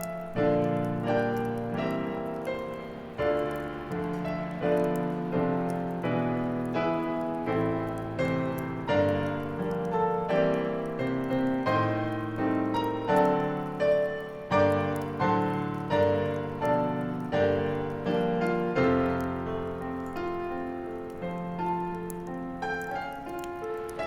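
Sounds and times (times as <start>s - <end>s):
solo piano playing: 0.0s - 24.0s.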